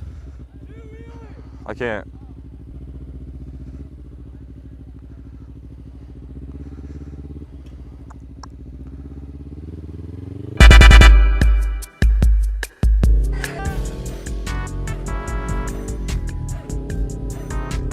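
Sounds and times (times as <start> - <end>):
motorcycle engine running: 0.0 - 17.9
loud music with heavy beat: 10.6 - 15.7.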